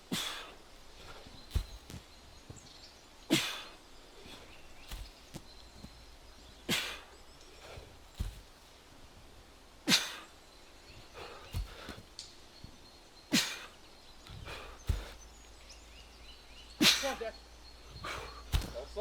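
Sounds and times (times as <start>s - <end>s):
man breathing and grunting: 0.0s - 2.1s, 3.3s - 5.5s, 6.6s - 12.2s, 13.2s - 15.8s, 16.7s - 19.0s
heavy stone thudding: 0.0s - 10.2s, 10.9s - 12.2s, 13.4s - 15.6s, 16.8s - 19.0s.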